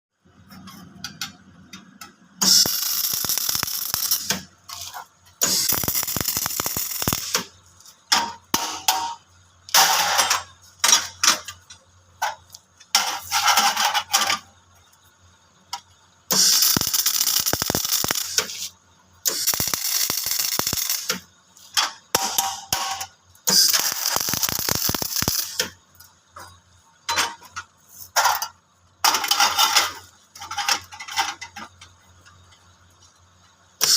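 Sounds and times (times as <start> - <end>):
arc welding crackling: 2.4 - 10.1, 15.7 - 26.1.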